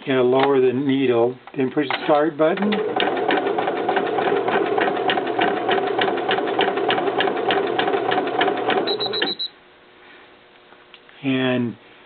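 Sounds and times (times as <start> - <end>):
embroidery machine stitching: 1.8 - 9.4
high beeps: 8.9 - 9.6.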